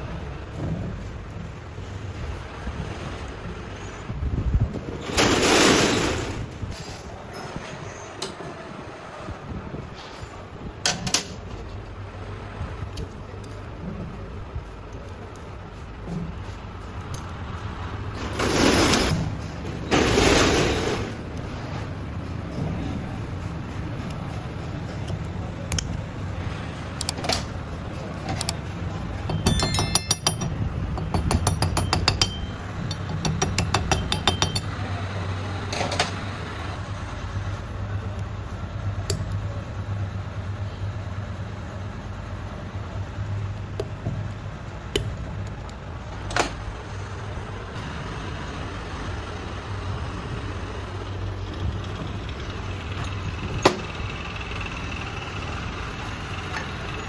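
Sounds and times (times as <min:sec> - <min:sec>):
metal tools clinking: 0:28.3 - 0:34.8.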